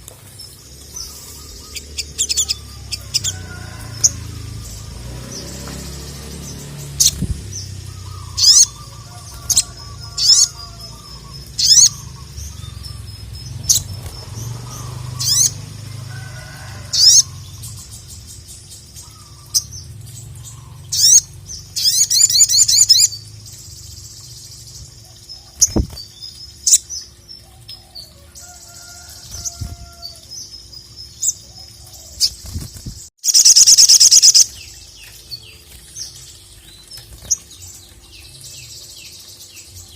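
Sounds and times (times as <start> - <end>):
songbird calling and trilling: 0.4 - 39.9.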